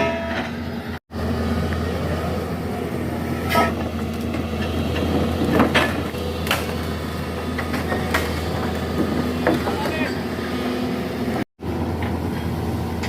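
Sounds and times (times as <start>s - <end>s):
heavy machinery engine running: 0.0s - 13.0s.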